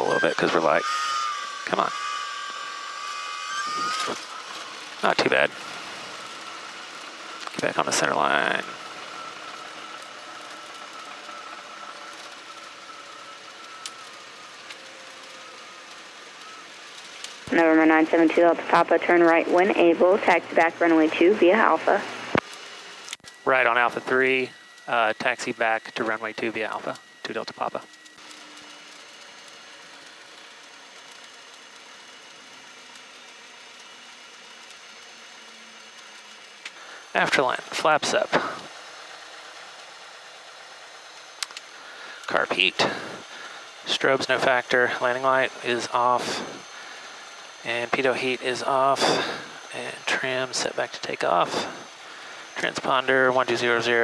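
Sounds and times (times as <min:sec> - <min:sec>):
low engine drone: 0:00.0 - 0:00.8, 0:03.7 - 0:22.4, 0:23.4 - 0:27.9, 0:36.6 - 0:39.7, 0:41.4 - 0:54.0
aircraft cabin hiss: 0:36.9 - 0:38.7, 0:41.7 - 0:53.0.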